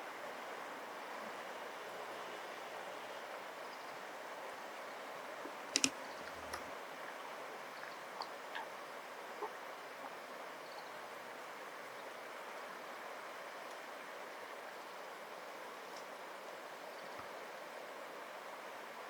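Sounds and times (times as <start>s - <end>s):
faint ticks: 5.7s - 6.7s
sharp double click: 5.8s - 6.7s.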